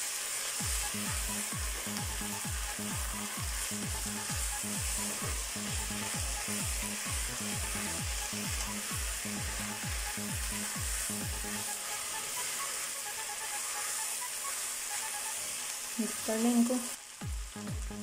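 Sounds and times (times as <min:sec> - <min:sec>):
spatula stirring in a wok: 0:00.0 - 0:17.2
vegetables sizzling in a wok: 0:00.0 - 0:18.0
low thumping beat: 0:00.6 - 0:11.7, 0:17.1 - 0:18.0.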